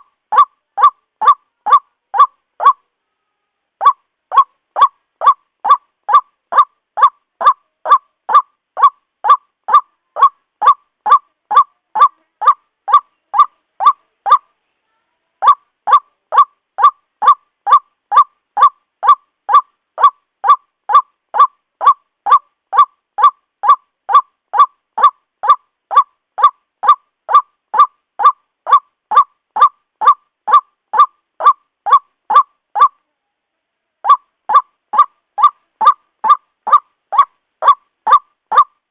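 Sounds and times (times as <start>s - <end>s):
bird honking kwak calls: 0.0s - 2.8s.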